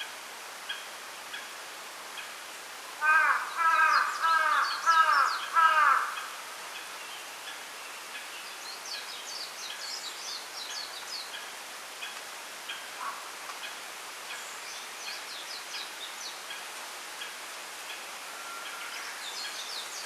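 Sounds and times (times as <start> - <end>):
crow cawing: 3.0 - 6.3, 13.0 - 13.3.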